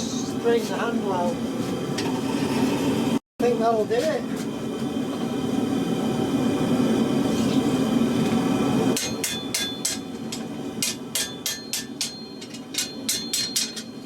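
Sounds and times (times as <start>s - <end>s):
hammer striking steel on anvil: 9.0s - 14.0s.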